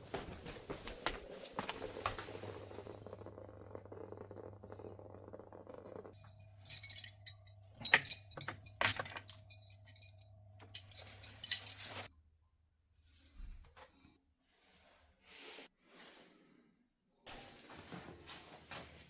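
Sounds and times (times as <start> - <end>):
small metal objects clinking: 6.0 - 12.1.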